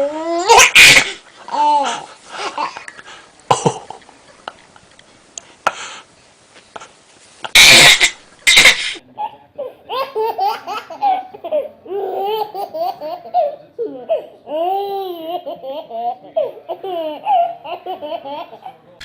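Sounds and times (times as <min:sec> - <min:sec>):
baby laughing: 0:07.6 - 0:18.8.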